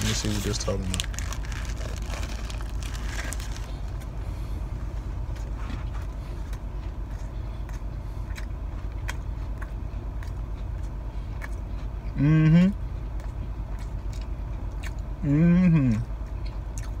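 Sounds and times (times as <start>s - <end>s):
paper wrapper crinkling: 0.0s - 4.0s
car engine idling: 0.0s - 17.0s
chewing clicks: 6.5s - 12.2s, 13.2s - 15.1s, 16.0s - 17.0s.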